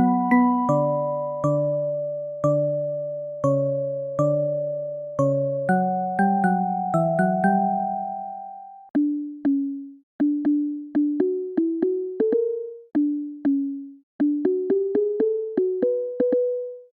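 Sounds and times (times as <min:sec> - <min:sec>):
plucked mallet melody: 0:00.0 - 0:02.9.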